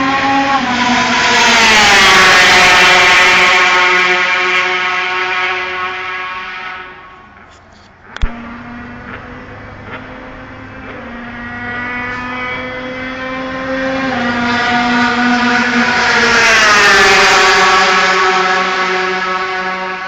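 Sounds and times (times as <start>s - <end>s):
motorcycle engine at high revs: 8.0s - 20.0s.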